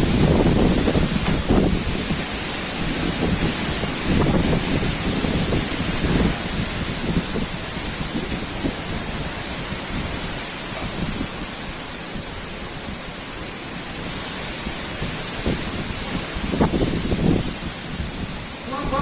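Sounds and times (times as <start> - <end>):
strong wind buffeting microphone: 0.0 - 19.0.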